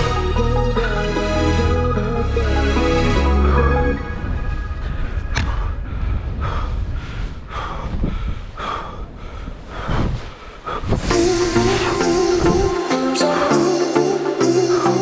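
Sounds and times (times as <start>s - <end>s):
music: 0.0s - 5.4s, 11.1s - 15.0s
wind on microphone: 4.1s - 12.8s
person breathing hard: 5.4s - 12.4s.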